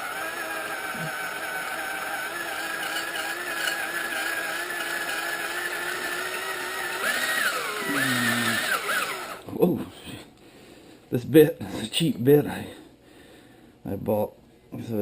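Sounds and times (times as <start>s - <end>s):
small drill whining: 0.0s - 9.4s.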